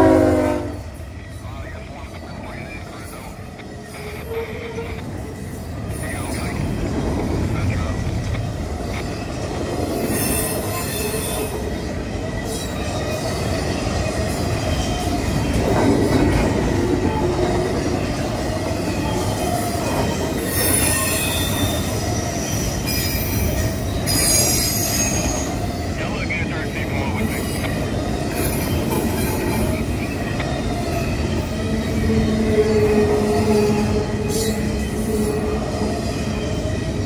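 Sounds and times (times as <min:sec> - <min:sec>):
train wheels rumbling on rail: 0:00.0 - 0:37.0
high-pitched wheel squeal: 0:20.4 - 0:25.7.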